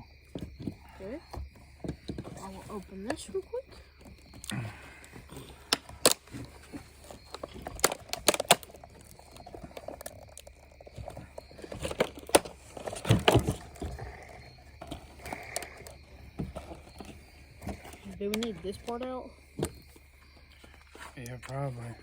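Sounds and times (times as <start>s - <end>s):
plastic packaging crinkling: 6.0s - 14.3s.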